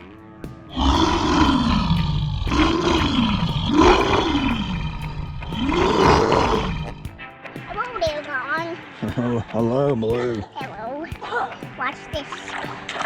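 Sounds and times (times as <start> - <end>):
deep monster roar: 0.7 - 7.2.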